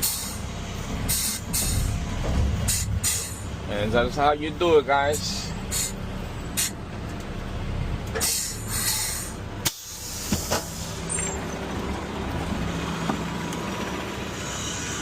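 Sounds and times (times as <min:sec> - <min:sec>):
garbage truck diesel engine running: 0:00.0 - 0:15.0.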